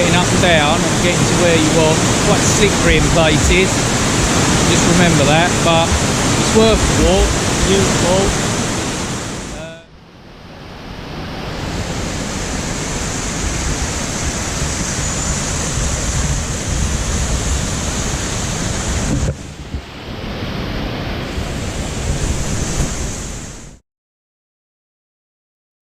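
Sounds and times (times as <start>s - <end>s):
wind rumbling on microphone: 0.0s - 9.6s
waterfall rushing: 0.0s - 9.8s.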